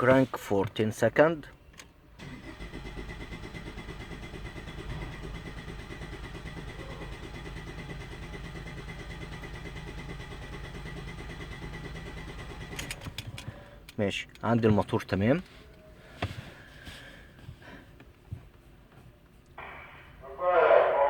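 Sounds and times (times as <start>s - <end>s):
engine cranking on starter: 2.2s - 15.5s.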